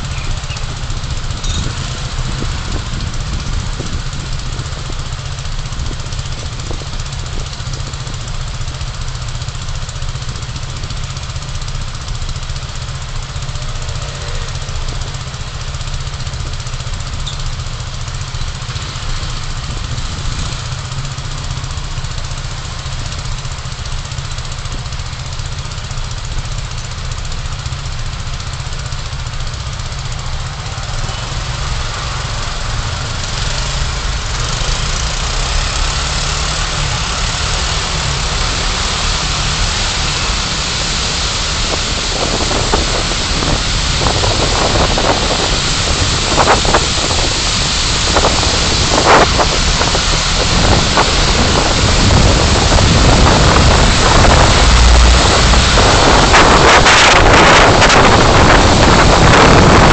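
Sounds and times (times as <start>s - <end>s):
tyre and wind noise: 0.0s - 8.6s, 34.0s - 59.9s
car engine rumble inside cabin: 0.0s - 12.0s, 29.1s - 59.9s.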